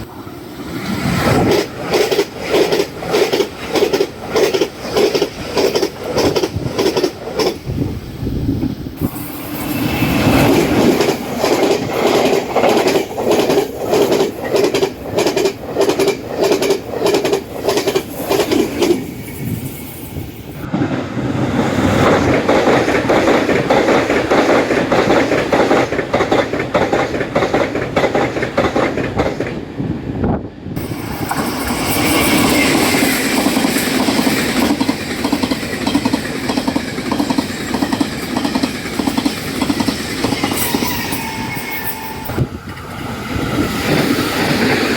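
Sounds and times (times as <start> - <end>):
train wheels clacking over rail joints: 1.0 - 7.7, 9.0 - 19.2, 22.0 - 29.6, 30.8 - 43.0.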